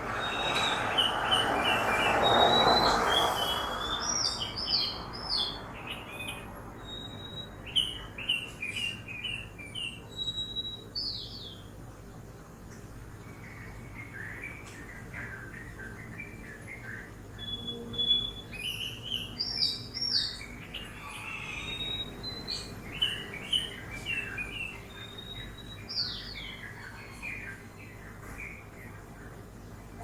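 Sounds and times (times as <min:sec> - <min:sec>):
passing vehicle: 0:00.0 - 0:07.4
songbirds chirping and whistling: 0:00.0 - 0:11.8, 0:13.2 - 0:30.0
low city noise: 0:00.0 - 0:30.0.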